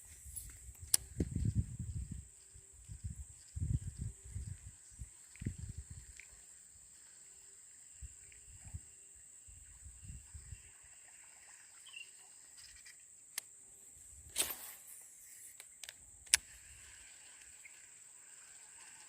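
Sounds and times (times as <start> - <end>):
high-pitched insect drone: 1.5 - 13.0
sharp clicks: 15.5 - 16.5.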